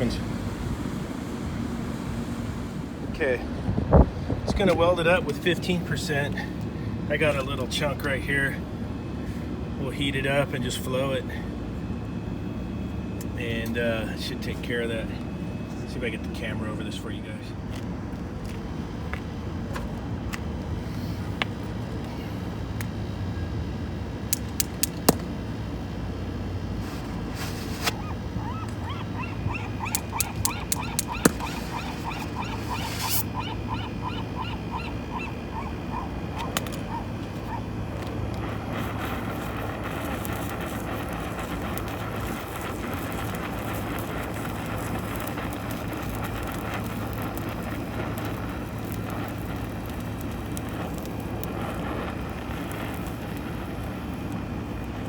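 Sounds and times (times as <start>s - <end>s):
steady low hum: 0.0s - 55.0s
sharp clicks: 24.3s - 25.3s, 29.8s - 32.2s
gull calling: 27.8s - 37.8s.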